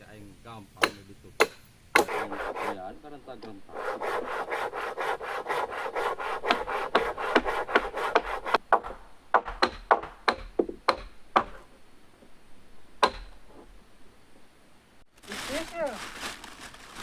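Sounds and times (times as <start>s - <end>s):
hand saw cutting wood: 0.8s - 3.0s, 3.7s - 8.6s.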